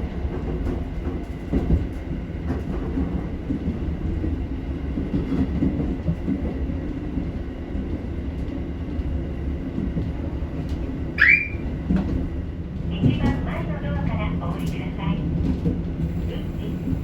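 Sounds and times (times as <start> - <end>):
diesel engine rumble: 12.9 - 17.0.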